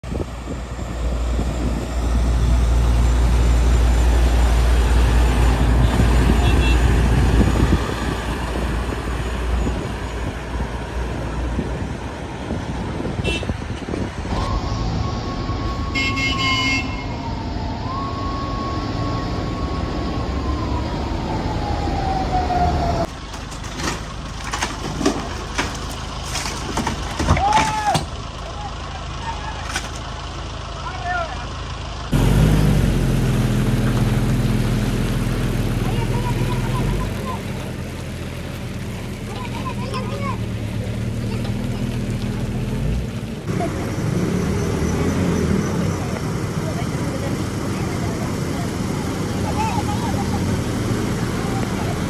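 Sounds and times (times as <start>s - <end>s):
heavy truck engine: 0.0s - 52.0s
road noise: 0.0s - 52.0s
siren-like tone: 14.3s - 23.1s.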